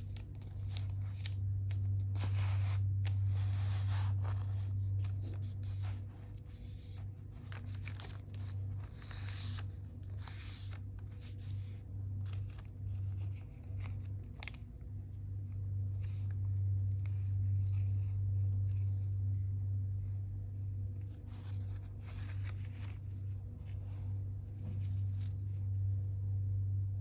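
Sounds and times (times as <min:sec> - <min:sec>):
paper crinkling and rustling: 0:00.0 - 0:14.8, 0:21.1 - 0:25.8
steady low hum: 0:00.0 - 0:27.0.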